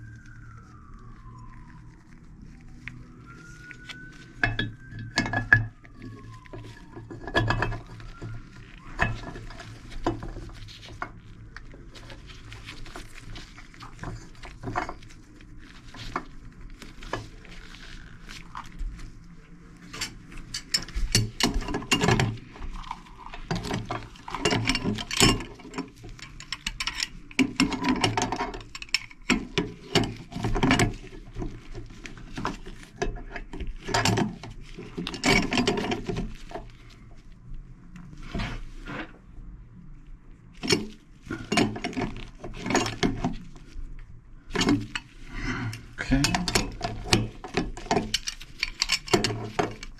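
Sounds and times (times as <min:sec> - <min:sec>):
metal parts and tools clinking: 0:04.4 - 0:11.1, 0:19.8 - 0:36.2, 0:46.1 - 0:49.9.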